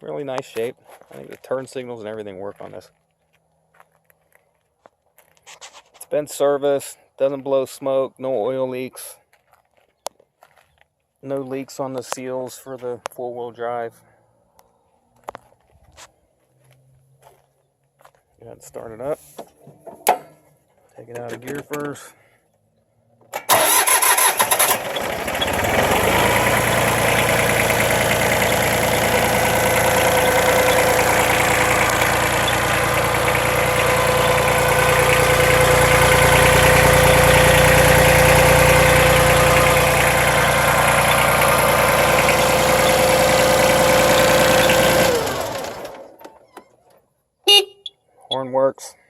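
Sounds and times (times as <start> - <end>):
diesel engine running: 23.4 - 46.3
starter cranking engine: 23.4 - 46.5.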